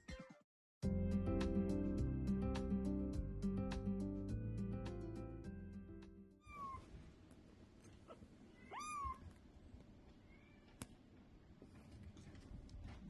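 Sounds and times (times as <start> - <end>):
background music: 0.8 - 6.3
kitten meowing: 6.4 - 6.9, 8.5 - 9.3.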